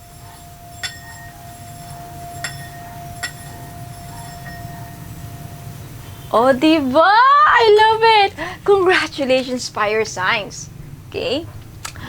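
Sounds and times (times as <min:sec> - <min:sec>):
light clinking chime strikes: 0:00.0 - 0:06.6
steady held ringing tone: 0:00.0 - 0:11.0.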